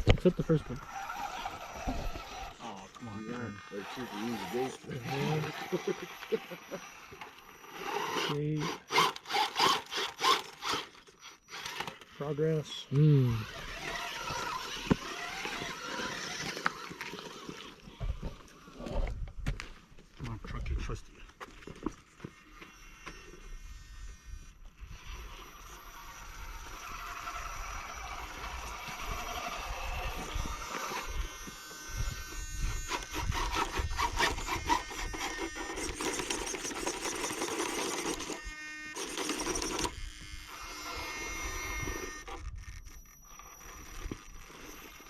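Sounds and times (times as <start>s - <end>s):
toy car electric motor whining: 0.0s - 19.0s, 22.2s - 45.0s
wind rumbling on microphone: 28.5s - 34.7s.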